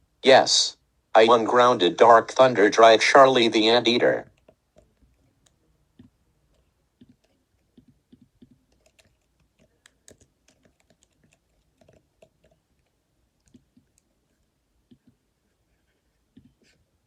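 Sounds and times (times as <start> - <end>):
faint irregular clicks: 4.2 - 16.9.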